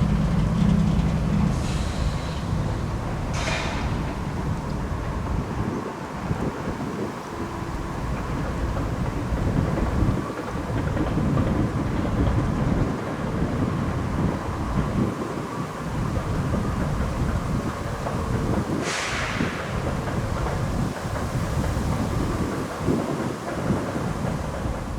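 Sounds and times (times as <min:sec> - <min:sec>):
freight train rumbling past: 0:00.0 - 0:24.9
wind buffeting microphone: 0:00.0 - 0:24.9
short hiss: 0:18.8 - 0:19.7.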